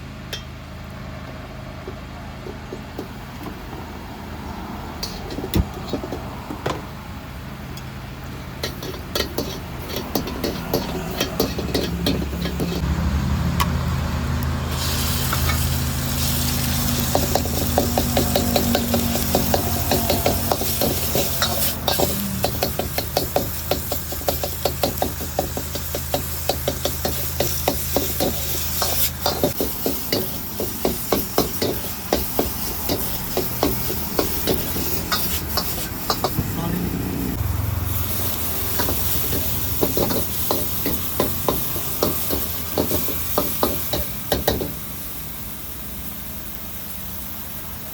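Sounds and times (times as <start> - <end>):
metal spatula scraping a wok: 5.0 - 6.2, 8.6 - 12.8, 14.7 - 36.4
food sizzling in a wok: 8.4 - 13.3, 14.5 - 47.9.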